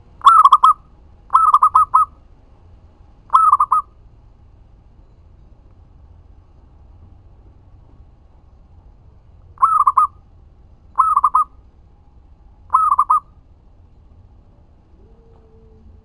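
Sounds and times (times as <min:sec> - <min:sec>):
dove cooing: 0:00.0 - 0:02.2, 0:03.3 - 0:03.9, 0:09.6 - 0:10.2, 0:11.0 - 0:11.5, 0:12.7 - 0:13.3, 0:14.9 - 0:16.0.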